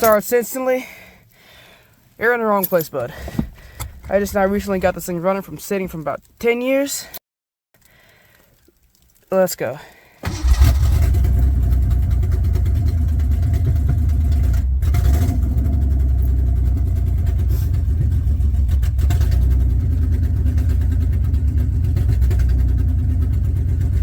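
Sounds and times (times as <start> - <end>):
car engine starting and idling: 10.2 - 24.0.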